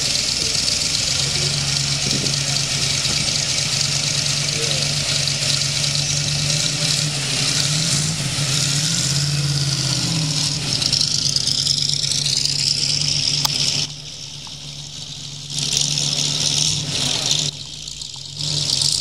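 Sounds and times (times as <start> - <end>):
car engine pulling away: 0.0 - 19.0.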